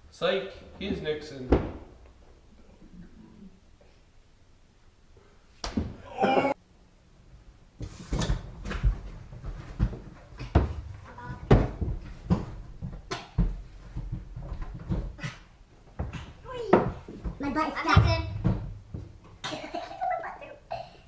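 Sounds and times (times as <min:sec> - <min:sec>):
irregular knocks and thumps: 0:07.8 - 0:19.4.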